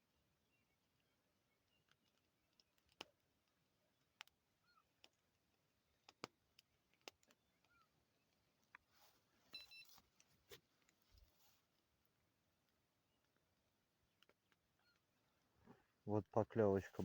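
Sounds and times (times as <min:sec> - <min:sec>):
faint clicks and ticks: 0:00.8 - 0:08.9, 0:09.5 - 0:16.9
faint high beep: 0:09.5 - 0:10.0.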